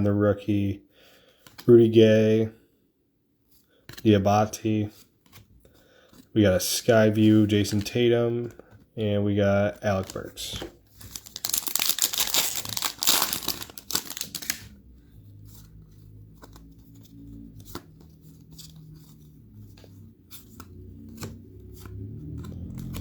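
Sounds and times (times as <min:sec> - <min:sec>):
cards clicking: 0:10.0 - 0:14.7
wrapper ripping open: 0:11.0 - 0:14.7.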